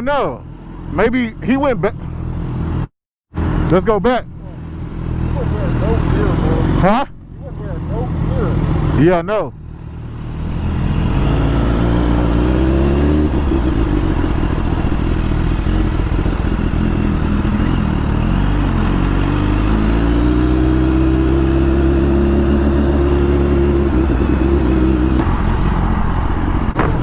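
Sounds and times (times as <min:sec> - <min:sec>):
motorcycle engine running: 0:04.3 - 0:19.8, 0:20.5 - 0:27.0.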